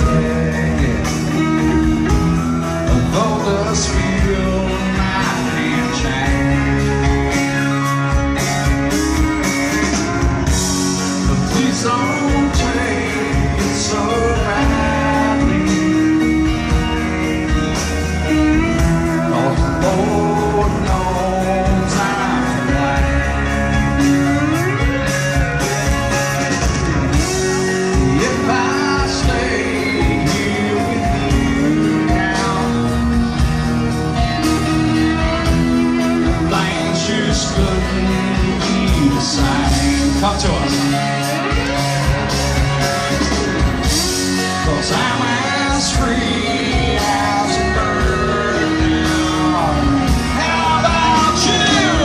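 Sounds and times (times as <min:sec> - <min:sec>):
live rock band playing: 0:00.0 - 0:52.0.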